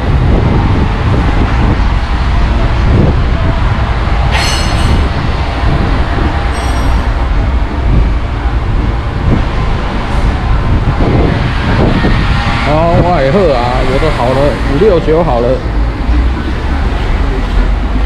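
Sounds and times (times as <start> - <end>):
diesel truck engine rumbling: 0.0 - 18.0
high-pitched squeals: 4.2 - 7.6.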